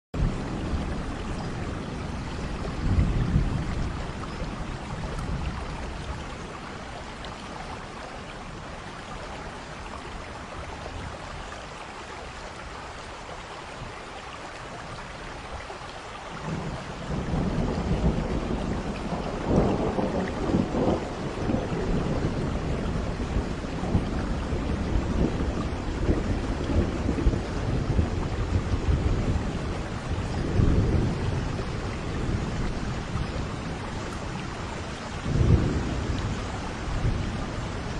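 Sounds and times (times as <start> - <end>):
thunder rumbling: 0.2 - 6.6, 16.4 - 37.9
steady rain falling: 0.2 - 37.9.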